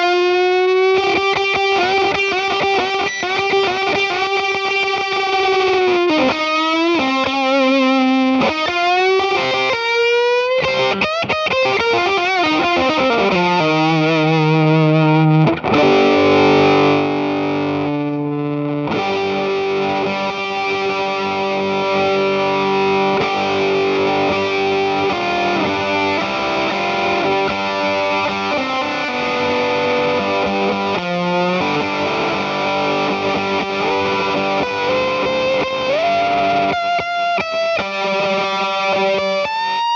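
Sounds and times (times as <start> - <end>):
fuzzy electric guitar: 0.0 - 39.9.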